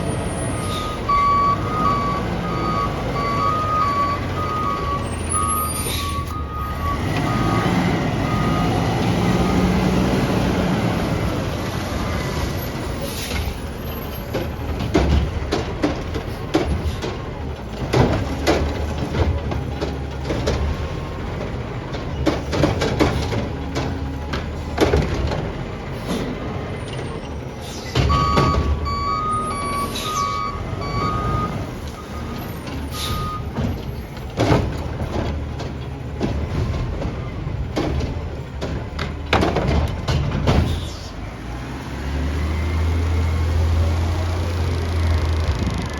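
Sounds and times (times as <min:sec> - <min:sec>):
truck knocks and clunks: 0:00.0 - 0:45.9
reversing alarm beeping: 0:00.4 - 0:09.7, 0:28.0 - 0:33.6
air brake hiss: 0:40.7 - 0:41.2.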